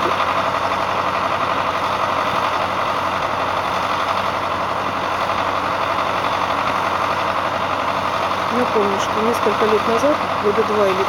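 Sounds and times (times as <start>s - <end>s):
engine-like drone: 0.0s - 11.0s.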